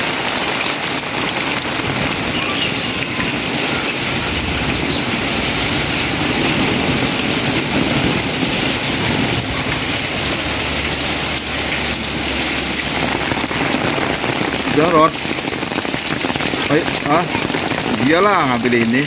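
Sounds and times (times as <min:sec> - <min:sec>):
heavy rain: 0:00.0 - 0:19.0
low steady rumble: 0:04.0 - 0:14.6.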